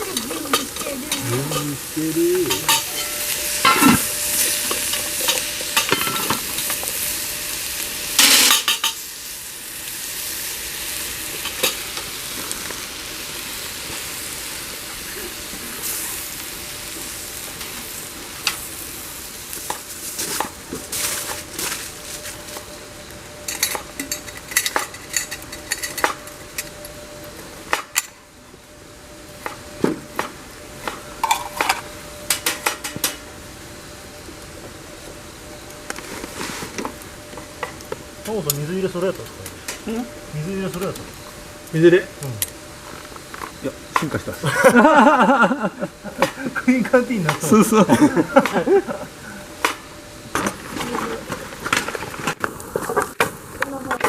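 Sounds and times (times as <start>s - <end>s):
food sizzling in a pan: 0.0s - 54.0s
utensils clinking against pan: 2.4s - 6.9s, 8.2s - 9.0s, 23.5s - 26.7s.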